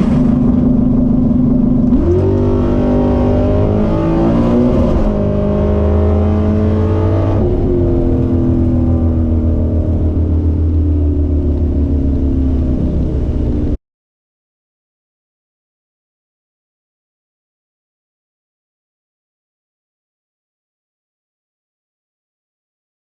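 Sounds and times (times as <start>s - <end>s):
drag car engine running loud: 0.0s - 13.8s.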